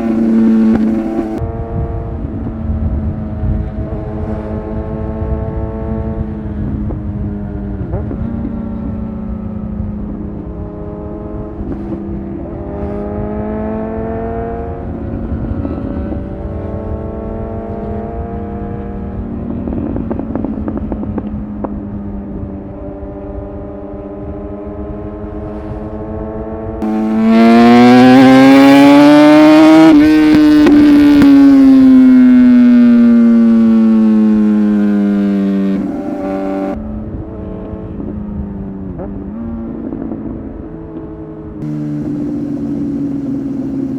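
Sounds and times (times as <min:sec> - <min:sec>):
loud engine revving: 0:00.0 - 0:01.4, 0:26.8 - 0:36.8, 0:41.6 - 0:43.9
motorcycle engines running: 0:00.0 - 0:43.9
wind rumble: 0:00.0 - 0:43.9.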